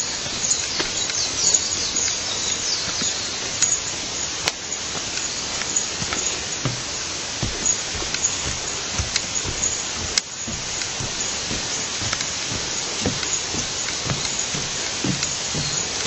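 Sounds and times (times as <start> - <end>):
bird or insect chirps: 0.0 - 16.0
steady high hiss: 0.0 - 16.0
low thumps: 5.0 - 16.0.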